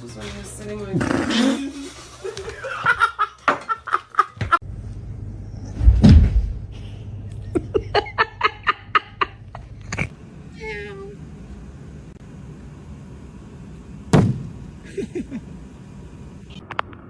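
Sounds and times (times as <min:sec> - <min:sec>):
person laughing: 0:01.3 - 0:04.6, 0:06.8 - 0:10.1, 0:14.8 - 0:15.5
heavy thump: 0:05.8 - 0:06.8.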